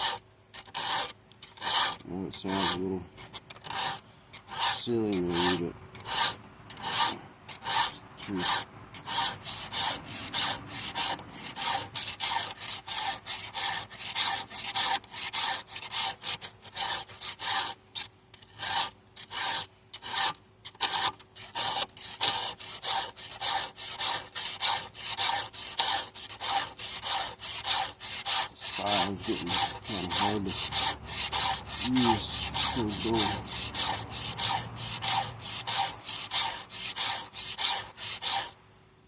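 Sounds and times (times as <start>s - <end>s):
file rasping on chainsaw chain: 0.0s - 38.6s.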